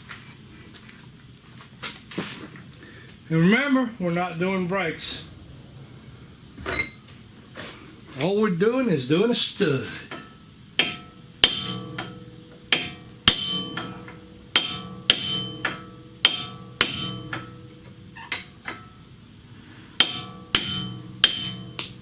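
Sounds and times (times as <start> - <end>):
hammer striking metal stud: 10.1 - 19.0, 20.0 - 22.0.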